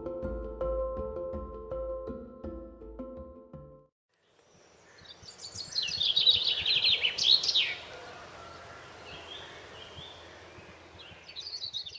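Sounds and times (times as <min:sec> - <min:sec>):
faint outdoor hiss: 0:04.1 - 0:11.9
songbird singing: 0:04.1 - 0:11.9.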